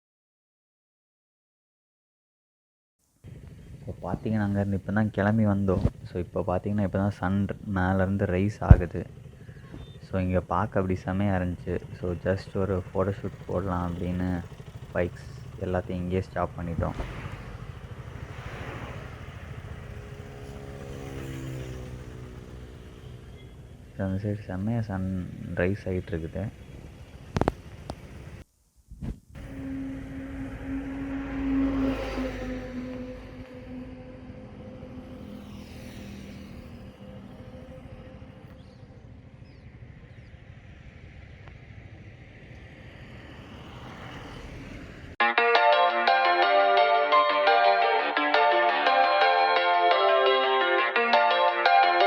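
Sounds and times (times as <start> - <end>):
road and wind noise: 3.2 - 28.4, 29.0 - 45.2
vehicle engine passing: 3.3 - 24.6, 29.4 - 45.2.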